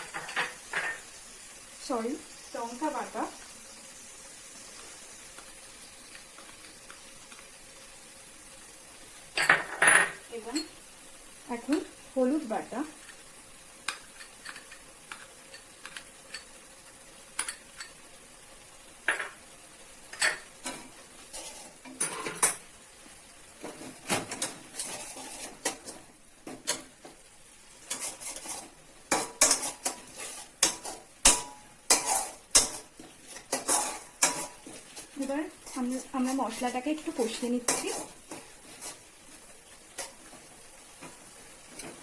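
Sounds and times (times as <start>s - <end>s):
faint sizzle: 0.0s - 42.0s
spatula scraping a pan: 20.2s - 22.5s, 23.6s - 26.9s, 27.7s - 42.0s.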